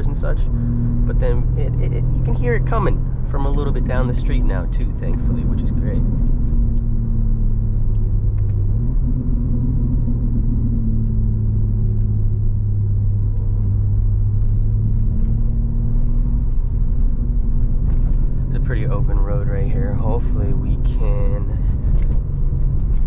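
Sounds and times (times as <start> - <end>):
car engine drone: 0.0 - 23.0.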